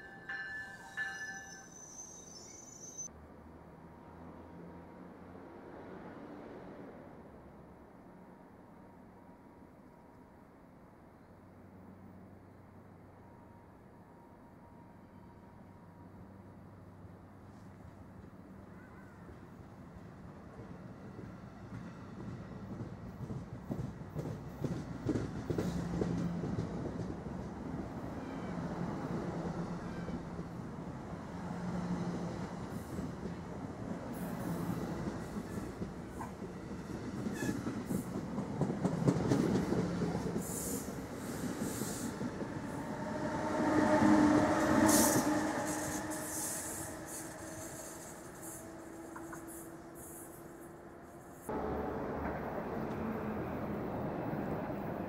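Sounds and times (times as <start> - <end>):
ringing tone: 0.0 - 3.1
train wheels rumbling on rail: 17.5 - 55.0.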